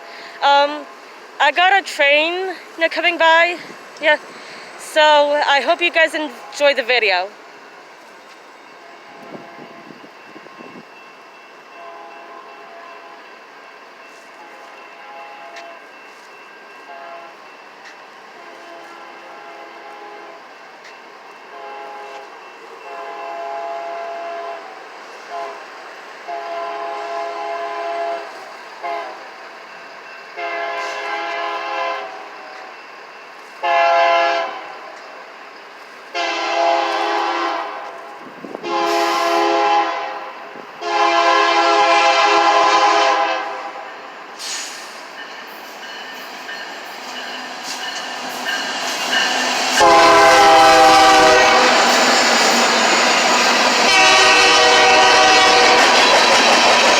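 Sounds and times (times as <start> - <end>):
train rumble: 0.0 - 56.9
locomotive air horn blasts: 11.8 - 13.2, 14.4 - 15.7, 16.9 - 17.4, 18.4 - 20.4, 21.5 - 22.2, 22.9 - 25.6, 26.3 - 29.2, 30.4 - 32.3, 33.6 - 34.7, 36.1 - 37.9, 38.6 - 43.9, 49.8 - 52.1, 53.8 - 56.0.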